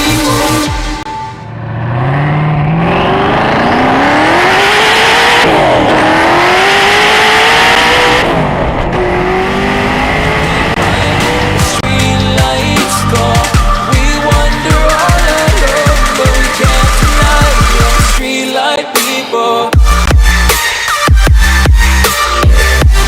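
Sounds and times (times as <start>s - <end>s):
sports car engine accelerating: 1.4s - 12.0s.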